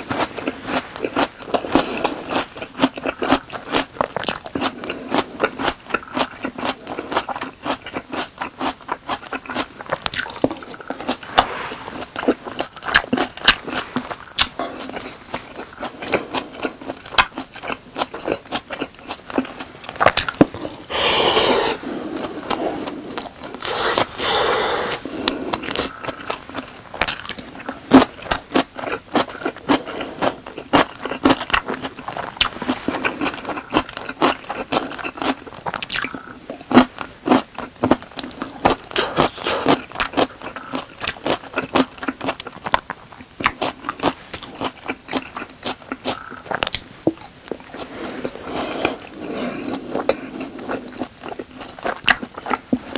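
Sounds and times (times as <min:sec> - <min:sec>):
close chewing with wet smacks: 0:00.0 - 0:52.9
scraping sounds: 0:19.8 - 0:25.9
mouth clicks: 0:20.1 - 0:22.6, 0:23.4 - 0:26.2.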